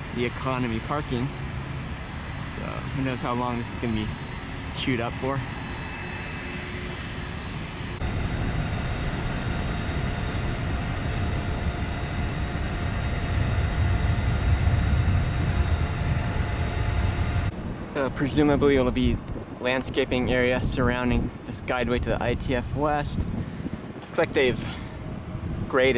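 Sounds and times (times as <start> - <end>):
jet airliner passing overhead: 0.0 - 17.5.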